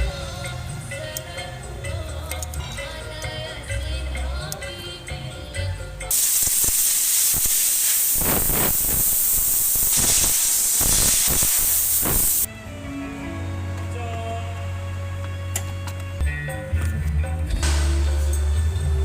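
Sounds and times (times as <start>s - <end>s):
background music: 0.0s - 6.1s, 12.5s - 19.0s
loud steady hiss: 6.1s - 12.5s.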